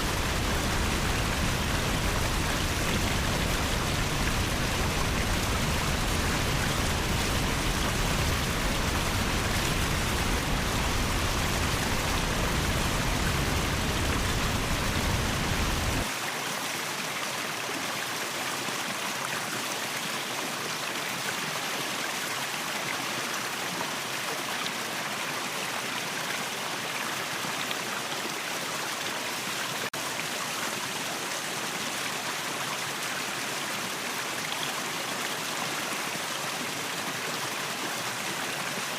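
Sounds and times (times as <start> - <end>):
waterfall rushing: 0.0 - 16.1.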